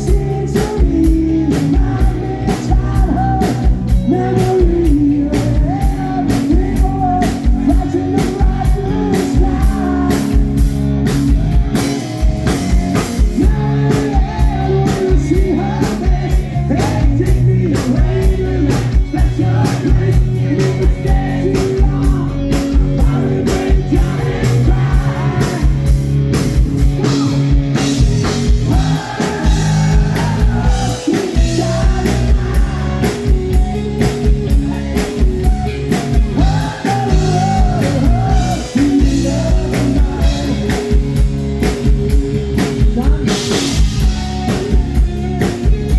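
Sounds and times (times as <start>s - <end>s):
person singing: 0.0s - 10.5s, 28.6s - 45.1s
drum kit beat: 0.0s - 45.9s
guitar: 0.0s - 45.9s.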